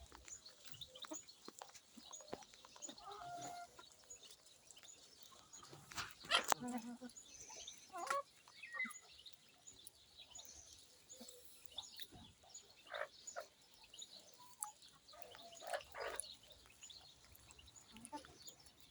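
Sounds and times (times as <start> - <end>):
bird chirps and calls: 0.0 - 18.9.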